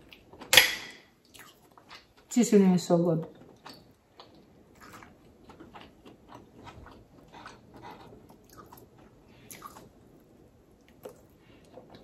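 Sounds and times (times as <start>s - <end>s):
person chewing food: 0.0s - 2.3s, 3.3s - 12.0s.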